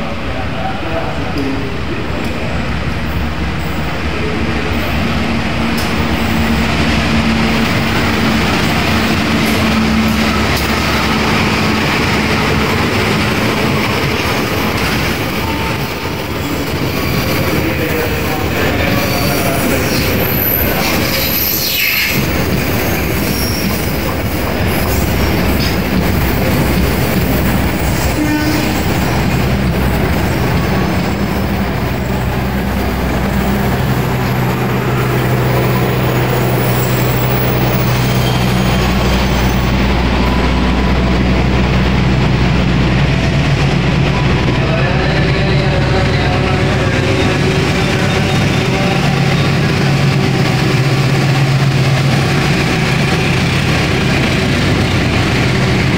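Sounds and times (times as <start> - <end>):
diesel locomotive engine hum: 0.0 - 55.9
train wheels rumbling and clattering: 0.0 - 55.9
faint high wheel squeals: 36.4 - 40.6.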